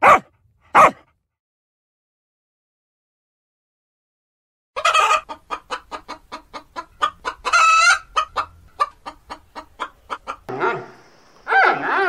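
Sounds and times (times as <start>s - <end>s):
hens clucking: 4.8s - 12.0s
loud hen calls: 4.8s - 12.0s.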